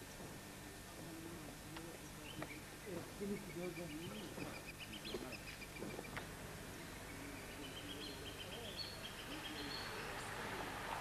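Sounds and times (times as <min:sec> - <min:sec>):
lower wavering bird calls: 0:06.8 - 0:10.6.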